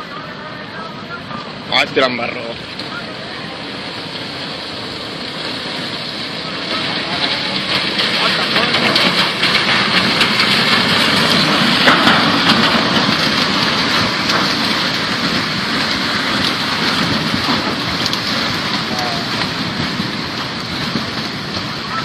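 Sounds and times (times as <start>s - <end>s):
flooded river roaring: 0.0s - 22.0s
logs and debris knocking: 6.5s - 22.0s.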